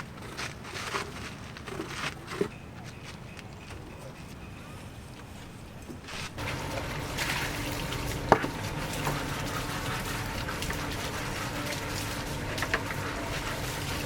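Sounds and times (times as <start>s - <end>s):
running splashing water: 6.1s - 14.0s.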